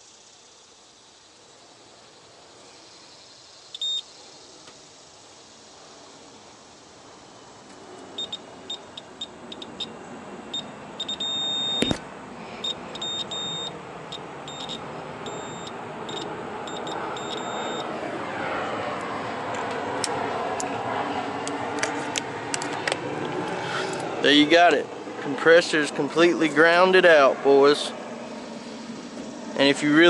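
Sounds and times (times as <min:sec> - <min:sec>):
multimeter beeping: 0:03.8 - 0:04.0, 0:10.5 - 0:12.0, 0:12.6 - 0:17.8
steady rushing noise: 0:13.4 - 0:30.0.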